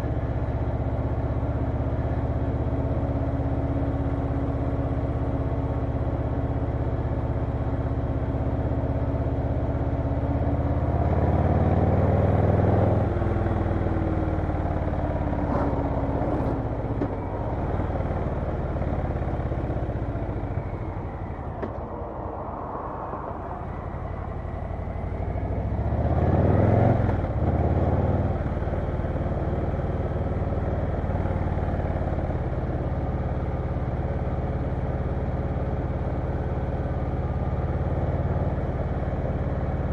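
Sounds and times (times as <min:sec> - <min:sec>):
motorcycle engine revving: 0:23.6 - 0:32.1.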